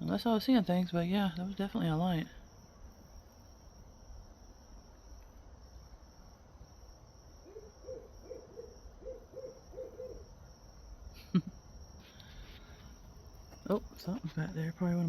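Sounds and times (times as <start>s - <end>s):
crickets chirping: 0.0s - 15.0s
owl hooting: 7.4s - 10.4s.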